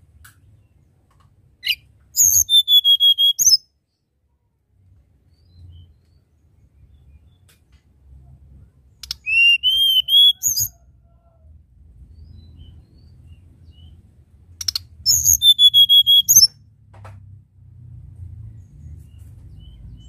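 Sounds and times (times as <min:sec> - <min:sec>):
bird singing whistled notes: 0:01.6 - 0:03.7, 0:05.3 - 0:06.2, 0:09.0 - 0:10.8, 0:14.6 - 0:16.6.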